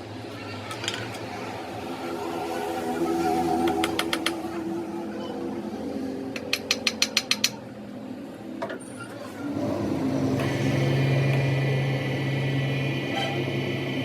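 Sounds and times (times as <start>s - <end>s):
machine humming with high whine: 9.4s - 14.0s.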